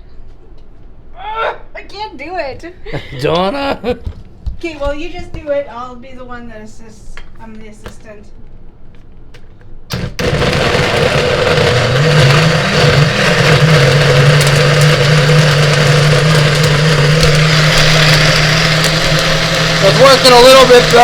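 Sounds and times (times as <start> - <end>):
blender running: 9.9 - 21.0.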